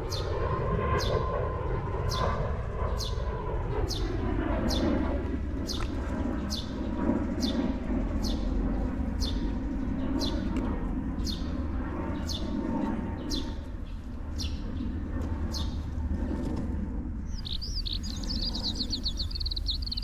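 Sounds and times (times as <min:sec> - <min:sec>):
low rumble: 0:13.6 - 0:20.0
bird calling high sliding notes: 0:17.3 - 0:20.0.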